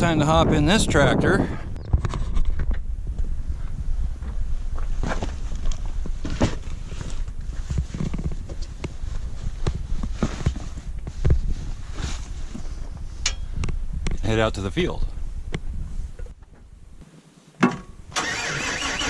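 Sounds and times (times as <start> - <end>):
knocks and clunks: 17.6 - 18.0.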